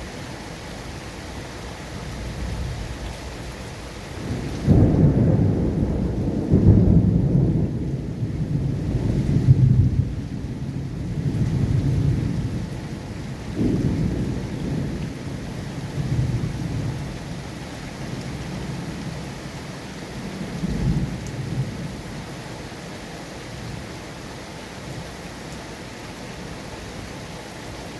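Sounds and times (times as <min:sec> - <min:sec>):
steady rain hissing: 0:00.0 - 0:27.9
rumbles of thunder: 0:04.2 - 0:19.4, 0:20.1 - 0:22.3.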